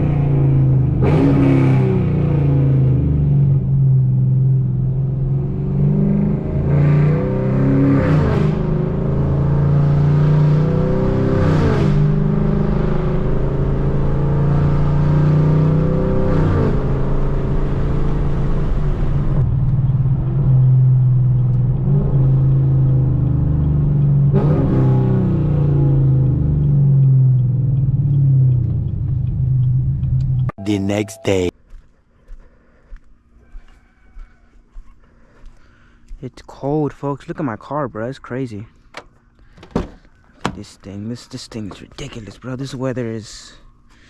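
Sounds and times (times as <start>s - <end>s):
car exhaust revving: 0.0s - 30.5s.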